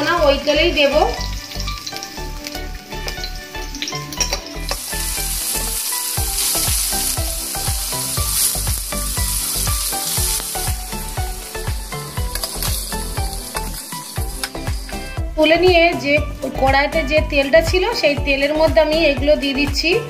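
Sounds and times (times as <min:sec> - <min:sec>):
cheese cubes sizzling in oil: 0:00.0 - 0:16.0.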